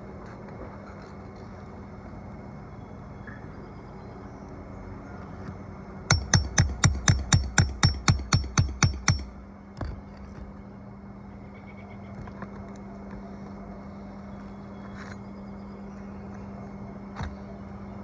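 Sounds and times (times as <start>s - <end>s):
hammer driving a nail: 6.1s - 9.3s.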